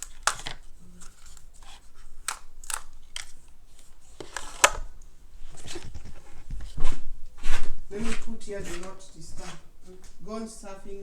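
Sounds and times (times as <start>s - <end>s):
packaging clicks and rustles: 0.0s - 6.8s.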